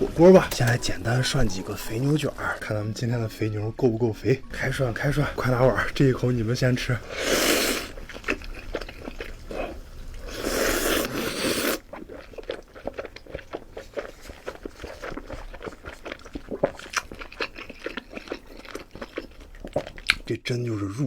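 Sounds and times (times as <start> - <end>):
wet chewing clicks: 7.2 - 20.3.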